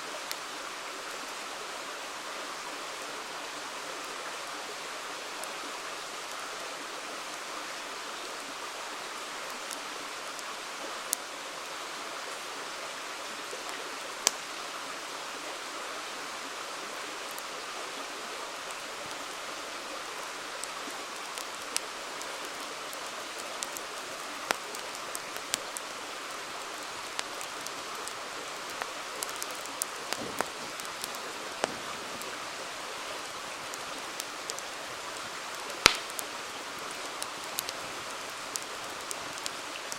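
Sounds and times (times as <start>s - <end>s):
river flowing: 0.0s - 39.9s
campfire crackling and popping: 13.4s - 14.6s, 18.6s - 39.9s.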